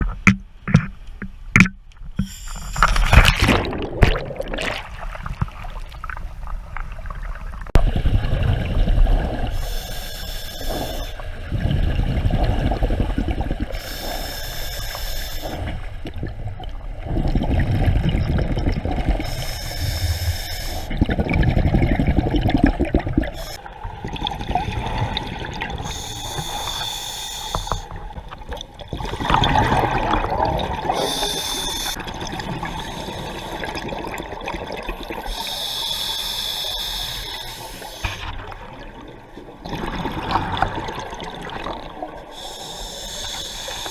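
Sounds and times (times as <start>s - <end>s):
regulator hissing inhale: 2.2s - 3.0s, 9.5s - 11.2s, 13.8s - 15.7s, 19.3s - 20.9s, 23.3s - 23.6s, 25.9s - 28.0s, 31.0s - 32.0s, 32.8s - 33.7s, 35.2s - 38.3s, 42.3s - 43.9s
exhaled bubbles rumbling: 2.8s - 9.6s, 11.2s - 13.8s, 15.6s - 26.0s, 28.0s - 35.3s, 38.0s - 42.4s.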